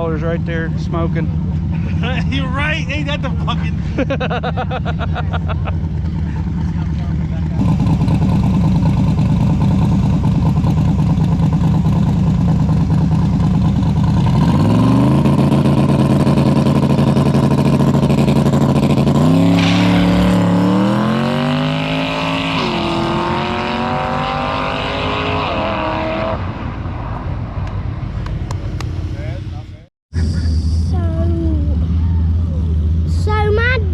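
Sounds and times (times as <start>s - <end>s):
race car accelerating hard: 14.1s - 27.8s.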